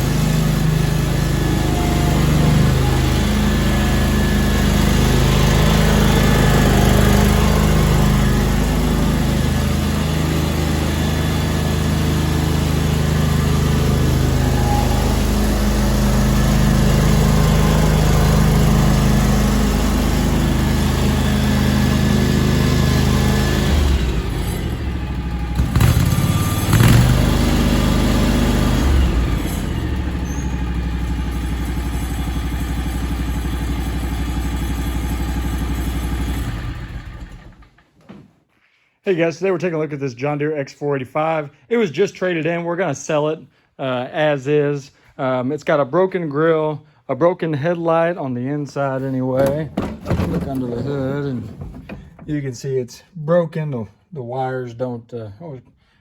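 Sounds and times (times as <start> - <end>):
garden tractor engine running: 0.0 - 37.8, 49.1 - 52.5
sharp knocks: 49.4 - 52.5.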